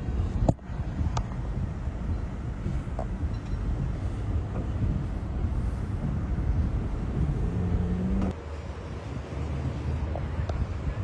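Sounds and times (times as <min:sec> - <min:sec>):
steady hum: 0:00.0 - 0:08.3
wind noise: 0:00.0 - 0:11.0
vehicle driving fast: 0:03.9 - 0:08.6.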